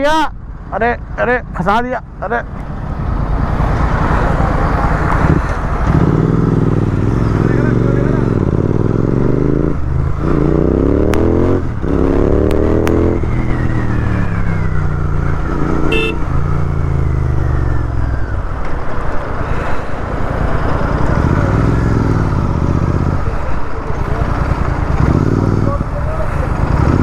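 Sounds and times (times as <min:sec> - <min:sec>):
motorcycle engine accelerating: 0:02.7 - 0:19.4, 0:20.0 - 0:27.0
short horn beep: 0:15.8 - 0:16.4.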